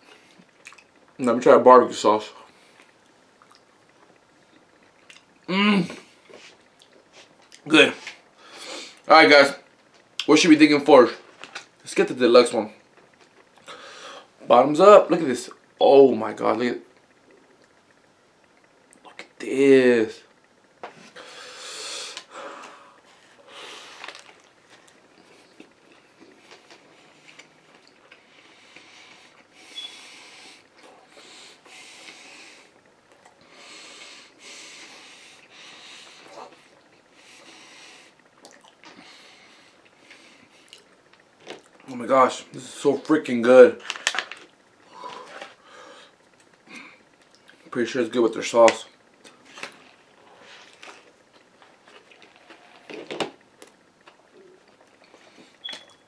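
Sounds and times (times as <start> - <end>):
man chewing with wet clicks: 0.3 - 1.2, 2.7 - 5.4, 6.3 - 7.6, 24.0 - 29.9, 32.8 - 33.4, 38.3 - 39.1, 39.8 - 41.8, 46.2 - 47.6, 49.1 - 56.0
heavy breathing through nose: 13.6 - 14.3, 21.0 - 24.3, 28.2 - 32.8, 33.4 - 38.2, 44.9 - 47.1.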